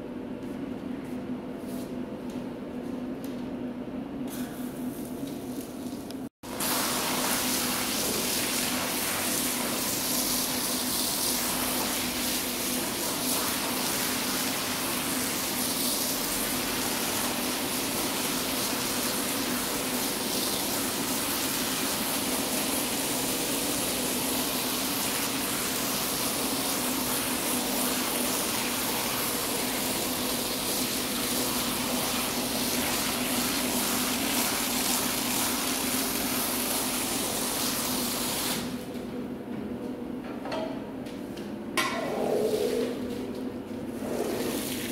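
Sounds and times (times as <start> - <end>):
pressure washer spraying rug: 6.5 - 38.7.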